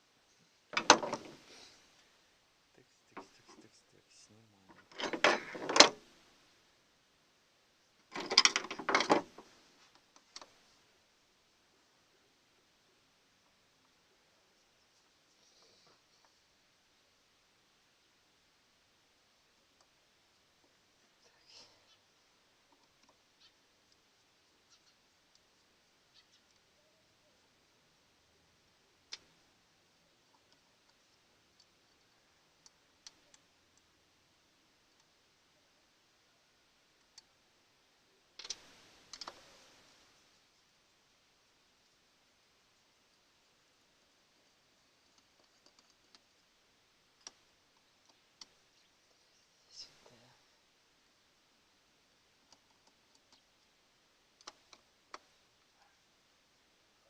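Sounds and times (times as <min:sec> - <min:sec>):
hand tools and metal parts clicking: 0:08.1 - 0:09.3.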